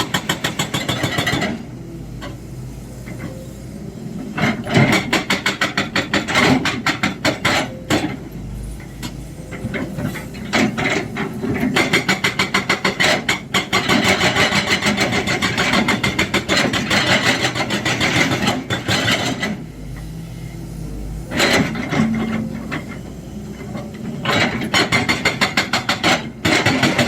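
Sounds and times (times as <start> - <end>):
diesel engine drone: 1.2 - 27.0
hydraulic breaker hammering: 24.2 - 27.0.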